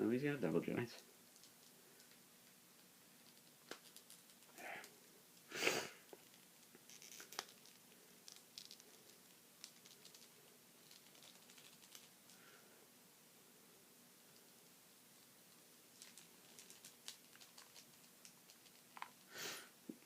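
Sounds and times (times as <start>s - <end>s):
plastic toy clicks and rustles: 6.2s - 12.1s.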